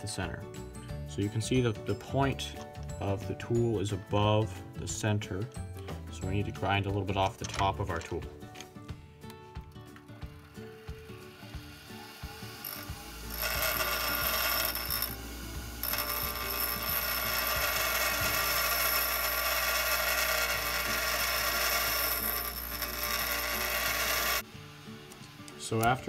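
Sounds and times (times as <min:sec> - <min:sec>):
bench grinder motor humming: 0:10.2 - 0:24.4
tool bit grinding on wheel: 0:10.4 - 0:24.4.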